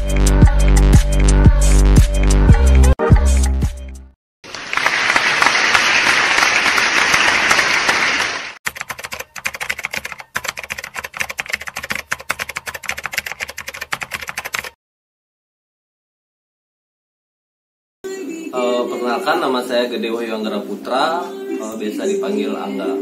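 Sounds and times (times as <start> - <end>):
applause: 4.4 - 8.6
rapid keyboard key clicks: 8.7 - 14.8.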